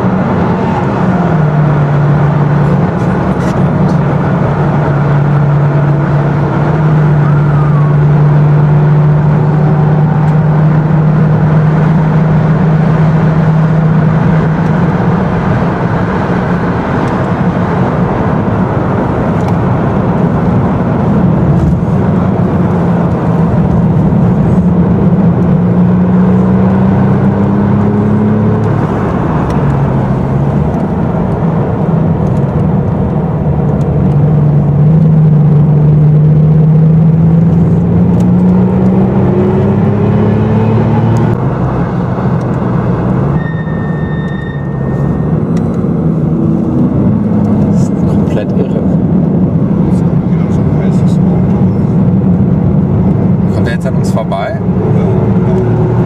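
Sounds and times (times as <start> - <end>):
car engine revving under load: 0.0 - 56.0
brief high squeal: 43.4 - 45.5.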